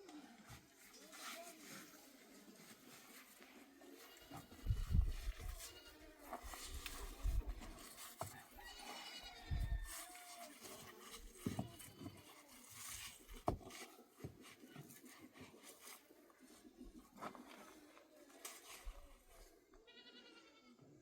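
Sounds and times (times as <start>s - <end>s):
goat bleating: 5.5s - 6.1s, 8.6s - 10.2s, 19.8s - 20.8s.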